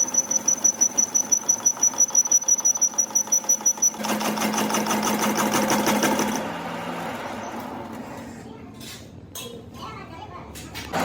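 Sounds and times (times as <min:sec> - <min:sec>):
workshop machine running: 0:00.0 - 0:08.4.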